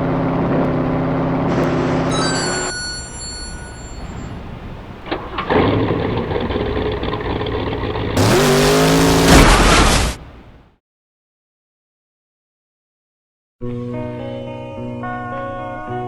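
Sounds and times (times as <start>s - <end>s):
car engine revving: 6.0s - 10.6s.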